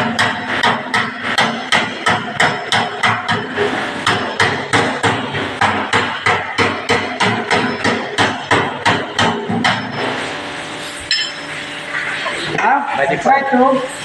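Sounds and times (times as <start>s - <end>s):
hammer striking metal panel: 0.0s - 9.8s.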